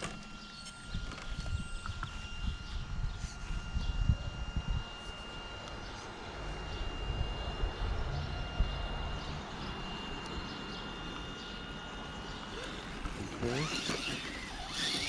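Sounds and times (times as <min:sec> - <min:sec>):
rc car motor whining: 0:00.0 - 0:15.0.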